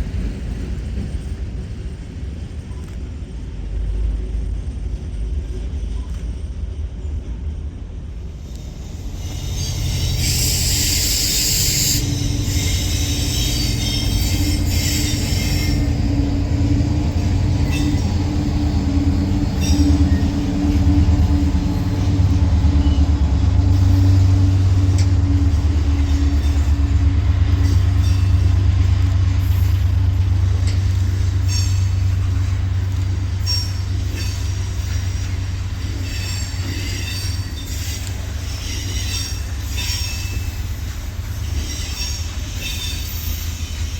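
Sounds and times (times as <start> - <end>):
train rumbling past: 0.0 - 43.9
high-pitched wheel squeal: 8.9 - 16.0, 36.0 - 43.9.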